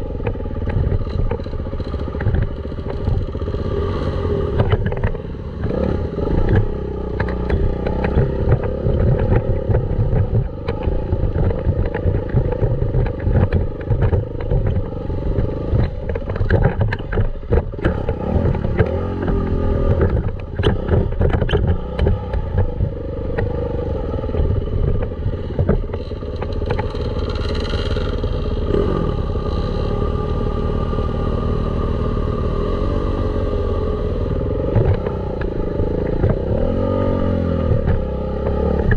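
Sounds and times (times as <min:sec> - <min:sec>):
knocks and rattles: 0:00.2 - 0:03.4, 0:04.6 - 0:23.6, 0:24.3 - 0:28.5
dirt bike engine revving: 0:01.8 - 0:16.5, 0:25.3 - 0:38.9.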